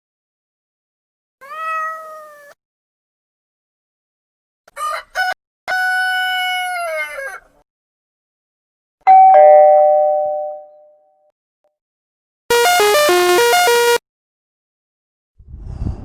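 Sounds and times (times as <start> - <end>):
ding-dong doorbell chime: 9.1 - 11.0.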